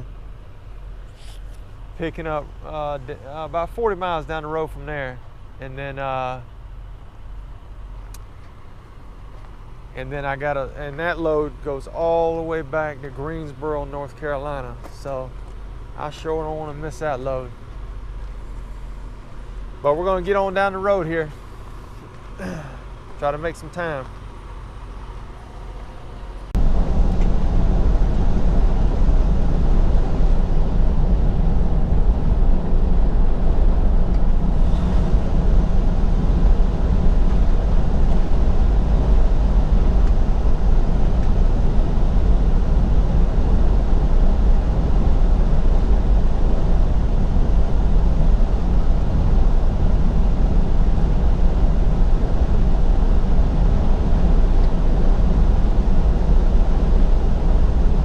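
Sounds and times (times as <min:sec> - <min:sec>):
road noise: 0:00.0 - 0:58.0
truck engine at speed: 0:00.0 - 0:58.0
wind noise: 0:22.7 - 0:58.0.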